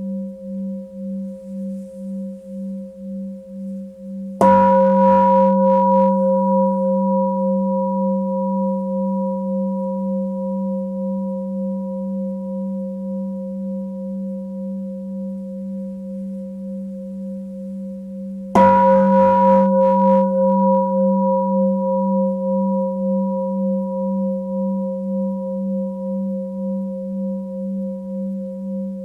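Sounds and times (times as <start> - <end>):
singing bowl ringing: 4.1 - 14.4, 18.6 - 28.7.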